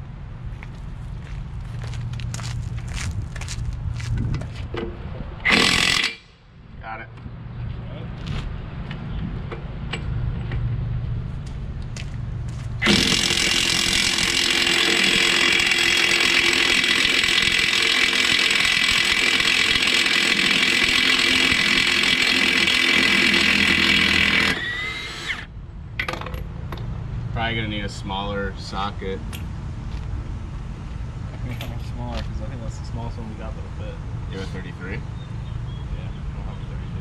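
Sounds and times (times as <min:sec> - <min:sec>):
impact wrench running: 0:05.5 - 0:06.3, 0:12.8 - 0:25.5.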